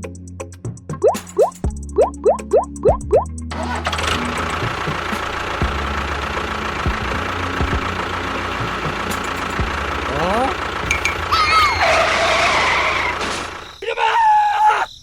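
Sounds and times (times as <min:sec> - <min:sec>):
music: 0:00.0 - 0:11.8
small motor rattling: 0:03.5 - 0:13.7.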